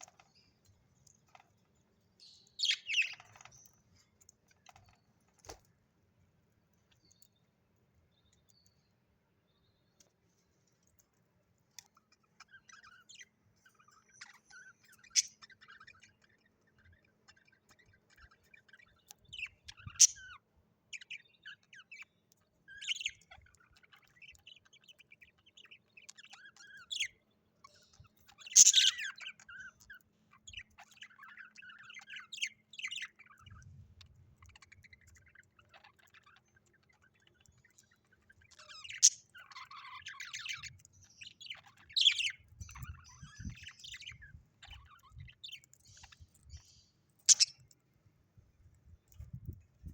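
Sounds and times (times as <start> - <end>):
budgerigars chirping and chattering: 2.2 - 5.5, 11.8 - 47.8.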